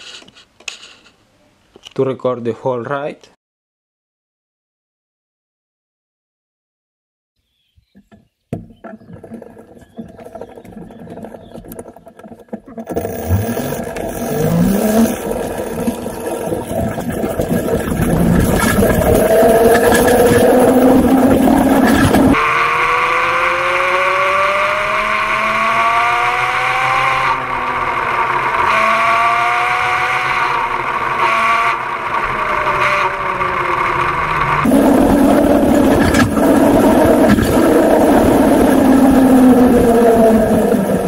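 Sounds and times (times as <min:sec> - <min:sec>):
road and wind noise: 0:08.6 - 0:41.0
chain drive whirring: 0:09.2 - 0:16.5
electric motor whine: 0:12.8 - 0:17.2, 0:17.9 - 0:41.0.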